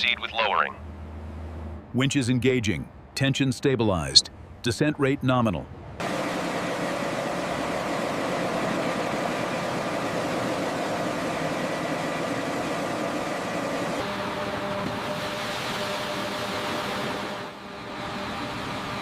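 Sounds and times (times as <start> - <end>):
heavy machinery drone: 6.0 - 19.0.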